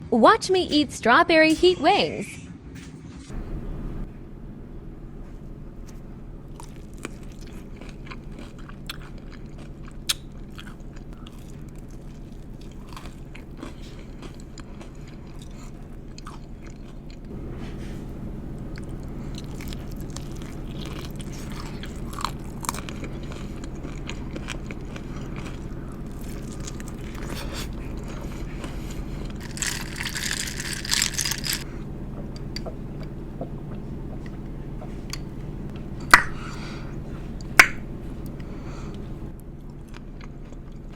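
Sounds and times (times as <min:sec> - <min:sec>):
steady low hum: 0:00.0 - 0:40.9
biting and chewing: 0:06.5 - 0:40.9
crunching: 0:18.6 - 0:40.9.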